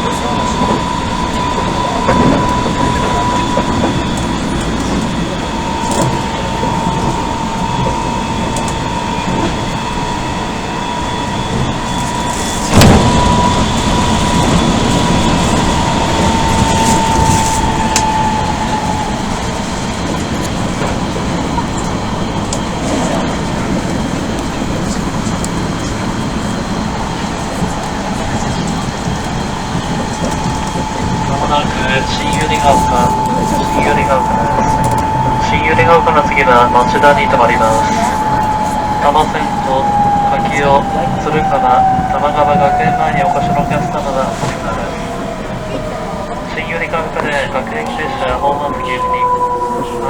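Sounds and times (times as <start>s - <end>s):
train rolling rumble: 0.0s - 50.0s
loud bang: 12.7s - 14.9s.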